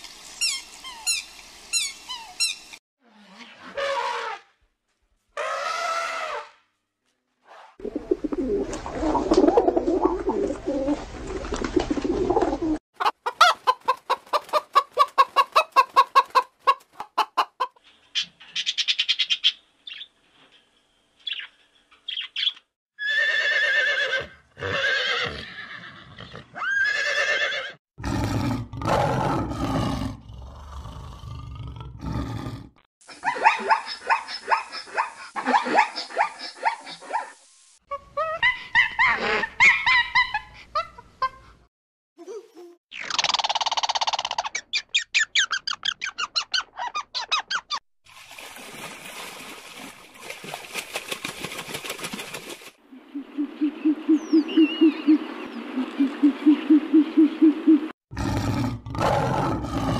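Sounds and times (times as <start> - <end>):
horses whinnying: 23.0 - 27.8.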